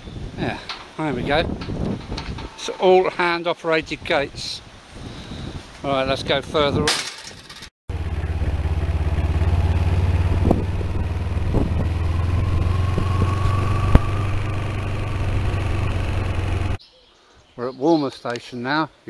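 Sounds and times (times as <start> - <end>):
motorcycle engine running: 7.9 - 16.8.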